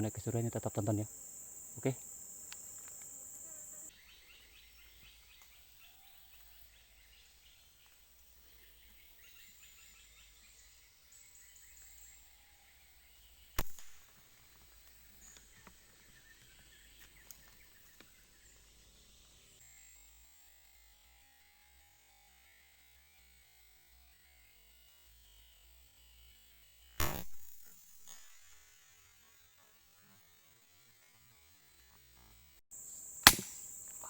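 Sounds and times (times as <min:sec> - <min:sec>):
faint insect calls: 0:00.0 - 0:34.0
high insect buzz: 0:00.0 - 0:34.0
sharp crack: 0:13.6 - 0:14.0, 0:27.0 - 0:27.4, 0:33.2 - 0:34.0.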